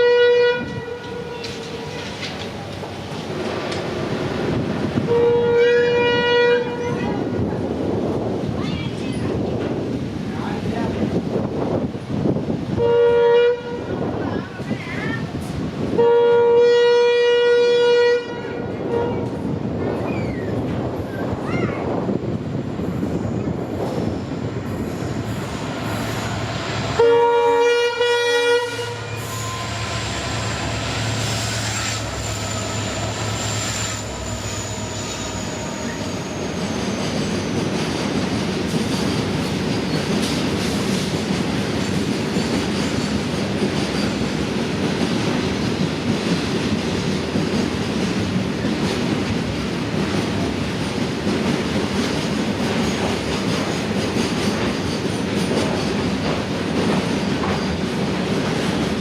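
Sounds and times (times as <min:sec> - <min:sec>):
locomotive horn blast: 0:00.0 - 0:02.2, 0:05.1 - 0:07.2, 0:12.8 - 0:14.0, 0:15.9 - 0:19.4, 0:27.0 - 0:30.7
train wheels clattering on rails: 0:00.6 - 0:05.1, 0:28.8 - 0:59.0.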